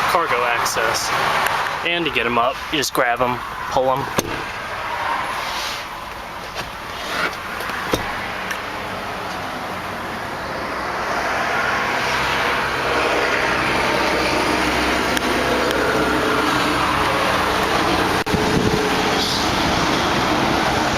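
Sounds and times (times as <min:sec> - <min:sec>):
motor vehicle noise: 0:00.0 - 0:20.9
car seat clicks and knocks: 0:04.1 - 0:04.5, 0:06.4 - 0:08.6.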